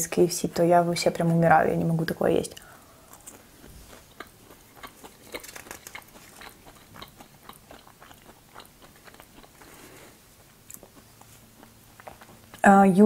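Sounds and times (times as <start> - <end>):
person chewing fries: 2.7 - 12.6.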